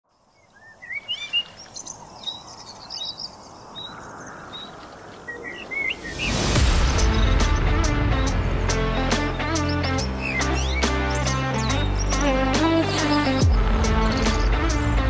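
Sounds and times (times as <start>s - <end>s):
small birds chirping: 0.1s - 15.0s
music: 6.5s - 15.0s.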